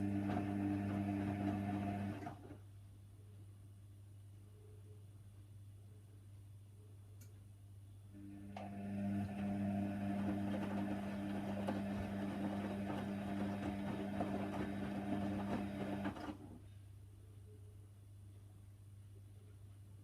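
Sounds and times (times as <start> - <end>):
washer dryer drum humming: 0.0 - 2.6, 8.2 - 16.6.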